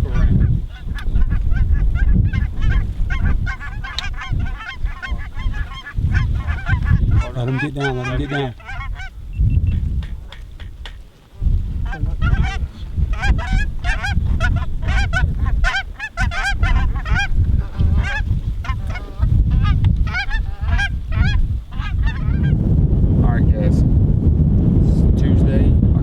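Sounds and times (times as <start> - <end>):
geese honking: 0.0 - 9.2, 11.8 - 22.6
wind rumble on microphone: 0.0 - 26.0.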